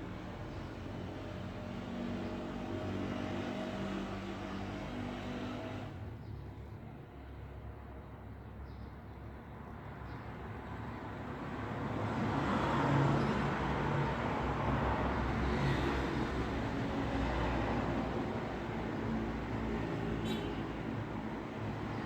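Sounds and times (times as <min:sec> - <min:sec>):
road traffic rumble: 0:09.2 - 0:22.0.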